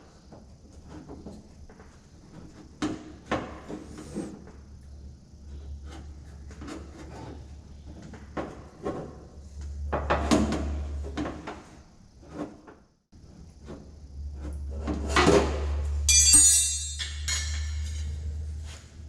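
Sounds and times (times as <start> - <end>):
metallic ring: 16.1 - 18.4.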